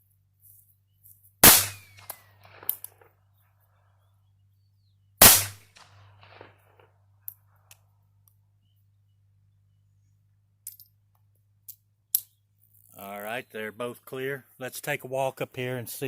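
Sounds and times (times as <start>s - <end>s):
small metallic clicks: 0.4s - 3.1s, 10.6s - 13.0s
pistol gunshots: 1.4s - 3.1s, 5.2s - 7.0s.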